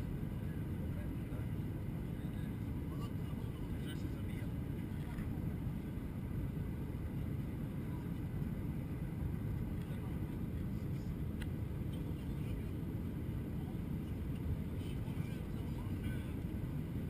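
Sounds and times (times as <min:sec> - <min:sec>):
airliner cabin rumble: 0:00.0 - 0:17.0
faint click: 0:11.4 - 0:11.6.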